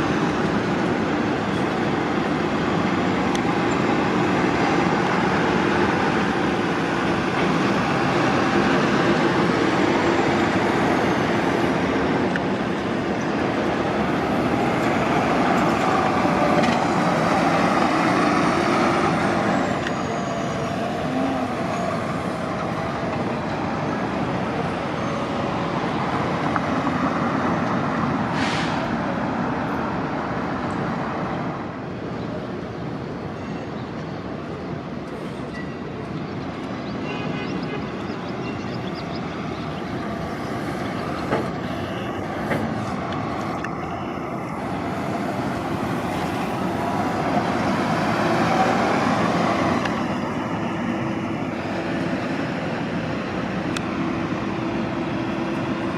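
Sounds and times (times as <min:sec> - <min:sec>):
bus engines and road noise: 0:00.0 - 0:55.9
short hiss: 0:28.3 - 0:28.8.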